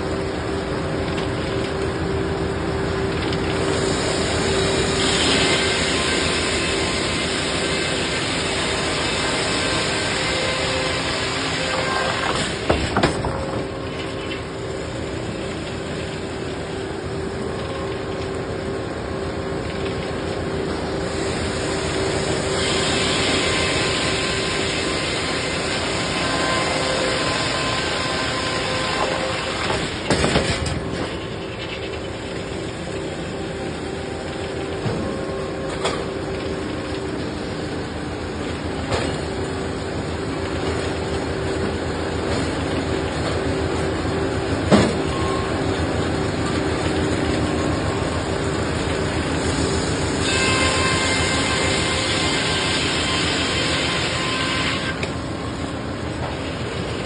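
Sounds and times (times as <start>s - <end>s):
motor saw cutting log: 22.2s - 30.6s.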